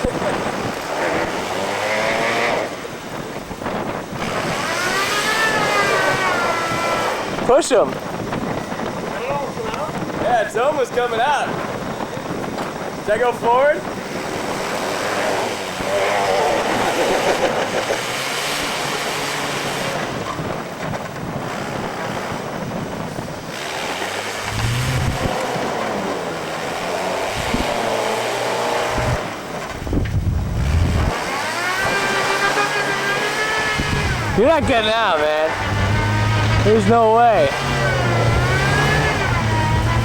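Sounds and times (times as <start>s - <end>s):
car engine revving: 0.0s - 7.6s, 23.4s - 29.5s, 30.1s - 40.0s
wheels spinning in snow: 0.0s - 9.5s, 10.2s - 40.0s
wind buffeting microphone: 0.0s - 40.0s.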